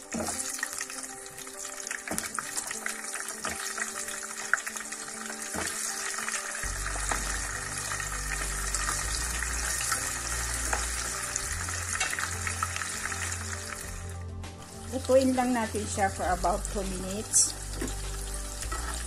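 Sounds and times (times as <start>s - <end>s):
food sizzling in hot oil: 0.0s - 19.0s
spatula stirring in pan: 17.7s - 19.0s.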